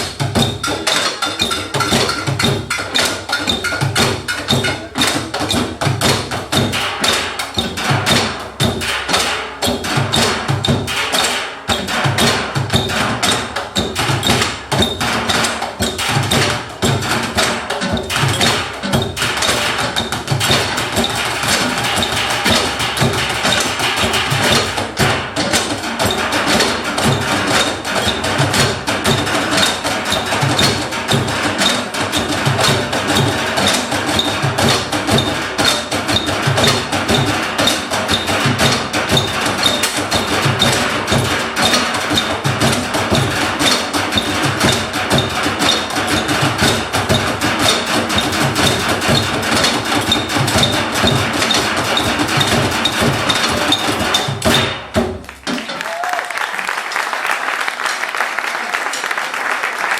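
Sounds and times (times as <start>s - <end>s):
percussion ensemble playing: 0.0s - 59.9s.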